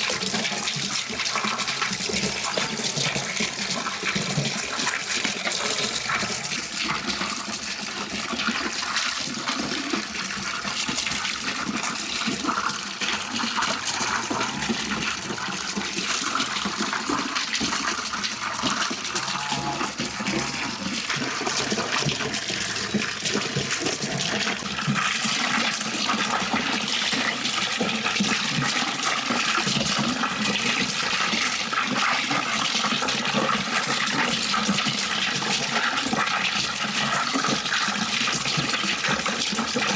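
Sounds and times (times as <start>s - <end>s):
running water rushing: 1.1s - 30.8s.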